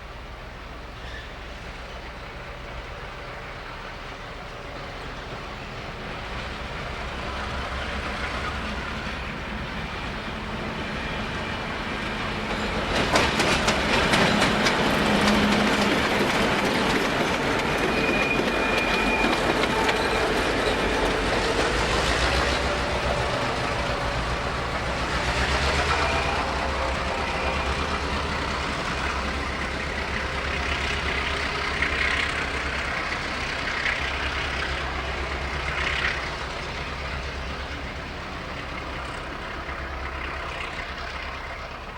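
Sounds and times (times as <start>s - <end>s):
diesel locomotive engine drone: 0.0s - 41.9s
high wheel squeals: 0.9s - 2.4s, 13.9s - 37.6s
wheels clattering over rail joints: 11.9s - 26.2s.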